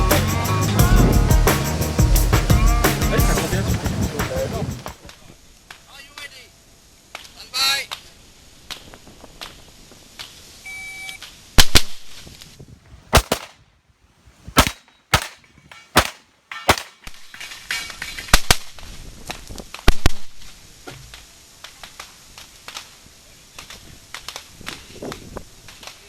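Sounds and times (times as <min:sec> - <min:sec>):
pistol shots: 0:13.2 - 0:13.6, 0:14.6 - 0:17.0.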